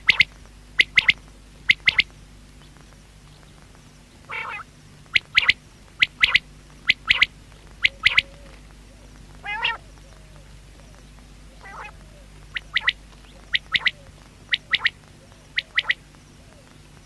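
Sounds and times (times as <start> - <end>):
quail calling sharp notes: 0.0 - 2.1, 4.3 - 8.6, 9.4 - 10.5, 11.5 - 16.7
low buzzy bird call: 0.0 - 17.0.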